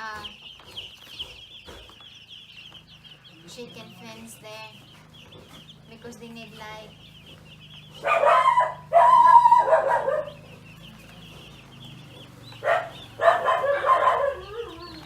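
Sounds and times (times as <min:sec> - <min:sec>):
chicks peeping: 0:00.0 - 0:15.0
rooster crowing: 0:08.0 - 0:10.4, 0:12.7 - 0:15.0.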